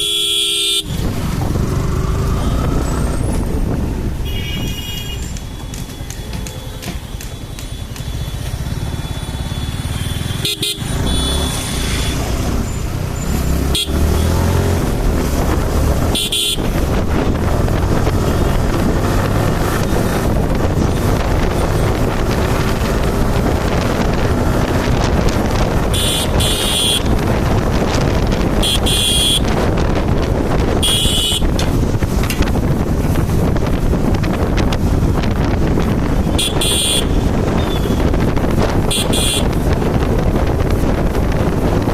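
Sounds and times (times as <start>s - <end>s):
motorcycle engine: 0.0s - 41.9s
road and wind noise: 0.0s - 41.9s
high-pitched vehicle horn beeps: 4.3s - 6.8s, 7.4s - 12.3s, 30.8s - 31.5s, 36.4s - 38.1s, 38.9s - 39.5s.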